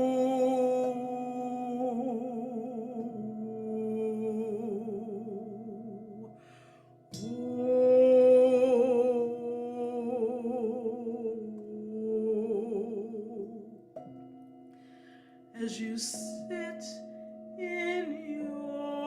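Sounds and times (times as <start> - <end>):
breath: 6.3 - 7.0, 14.7 - 15.5.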